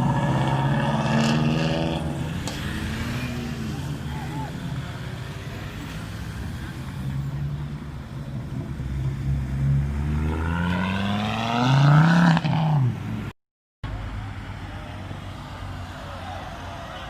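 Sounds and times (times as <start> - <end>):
car engine accelerating hard: 0.0 - 7.6.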